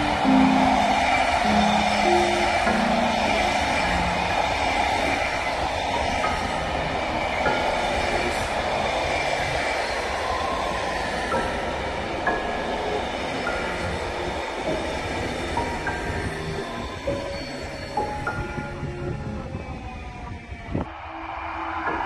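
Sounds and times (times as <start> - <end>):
train wheels rumbling on rails: 0.0 - 20.9.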